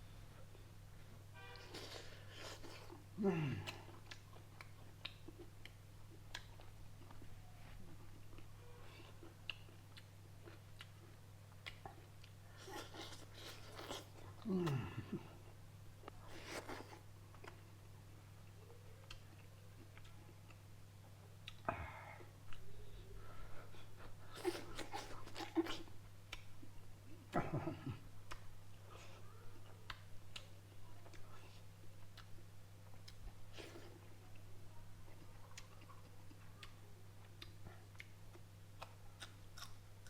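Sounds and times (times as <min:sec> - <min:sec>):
steady low hum: 0:00.0 - 0:40.0
person eating: 0:01.5 - 0:17.7, 0:21.4 - 0:26.4, 0:27.2 - 0:34.4, 0:35.1 - 0:39.8
wet chewing and lip-smacking: 0:03.6 - 0:07.3, 0:07.9 - 0:14.4, 0:19.0 - 0:20.6, 0:29.8 - 0:34.0, 0:35.1 - 0:39.8.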